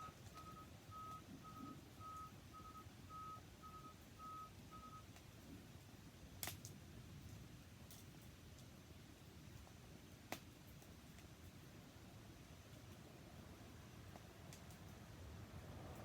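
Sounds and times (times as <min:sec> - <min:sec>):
faint electronic beeping: 0:00.0 - 0:05.1
sharp snap: 0:06.4 - 0:06.7.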